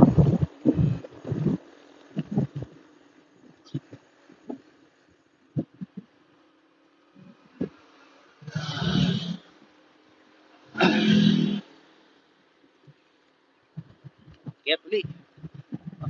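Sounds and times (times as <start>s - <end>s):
low thumps on microphone: 0.0s - 1.6s, 13.8s - 16.0s
wind gusts on microphone: 0.0s - 2.8s, 13.8s - 16.0s.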